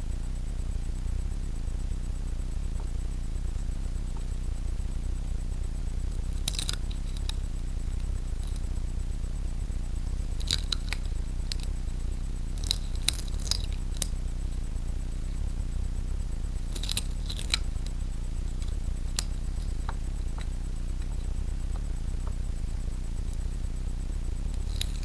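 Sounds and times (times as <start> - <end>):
low hum: 0.0 - 25.0
small hard objects clicking: 6.4 - 7.4, 10.4 - 11.7, 12.6 - 14.1, 24.6 - 25.0.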